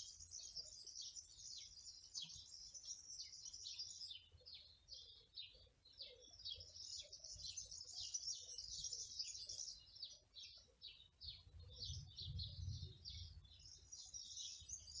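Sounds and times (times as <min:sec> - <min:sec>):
small songbirds chirping: 0:00.0 - 0:15.0
faint low rumble: 0:11.8 - 0:13.6.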